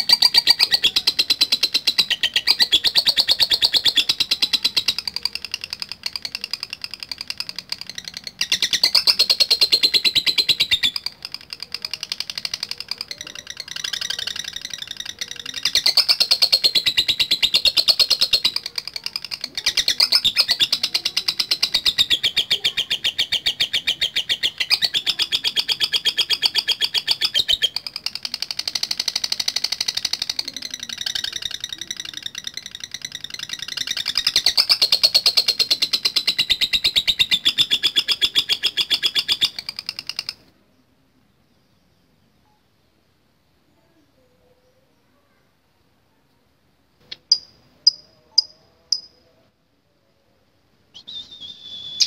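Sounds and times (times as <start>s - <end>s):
lovebird shrill chatter: 0.0s - 40.5s.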